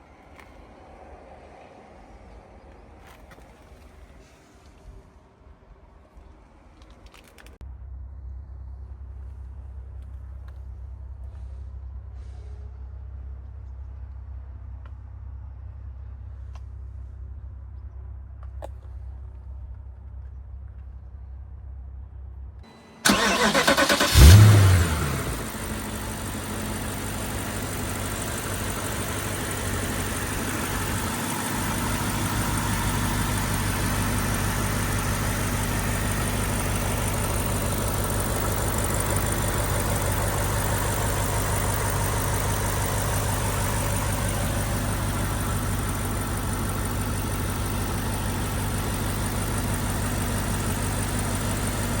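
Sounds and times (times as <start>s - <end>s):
car engine idling: 22.3s - 52.0s
car engine starting and revving: 22.7s - 52.0s.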